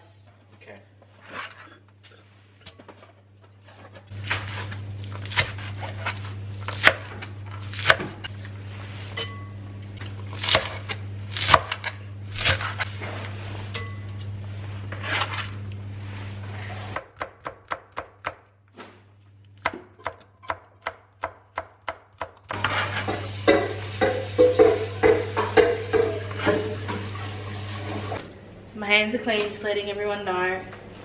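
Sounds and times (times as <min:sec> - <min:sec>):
knife chopping on cutting board: 0:04.2 - 0:08.2.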